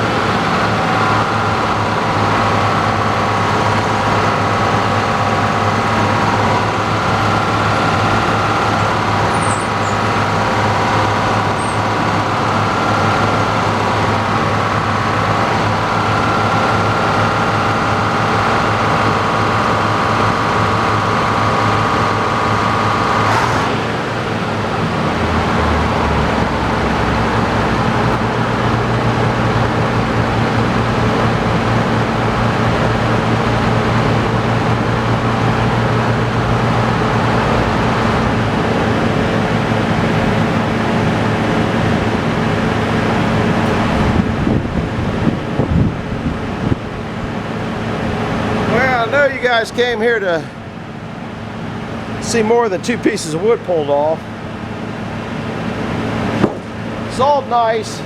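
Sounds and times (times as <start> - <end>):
saw whine: 0.0 - 29.1
sawmill running: 0.0 - 58.0.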